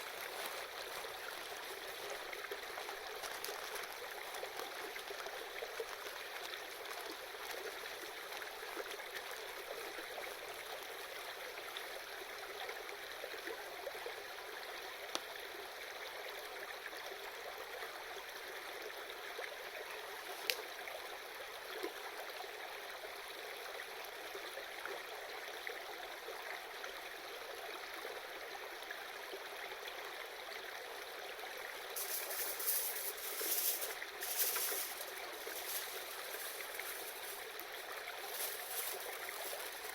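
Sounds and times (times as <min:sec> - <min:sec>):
river babbling: 0:00.0 - 0:11.0, 0:31.8 - 0:39.9.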